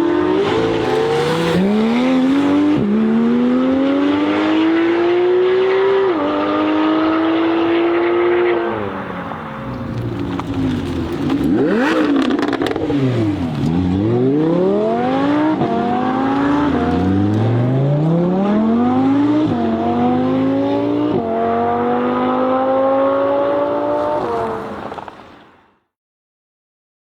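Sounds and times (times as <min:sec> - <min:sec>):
sports car engine accelerating: 0:00.0 - 0:25.1
exhaust crackles: 0:06.4 - 0:17.6.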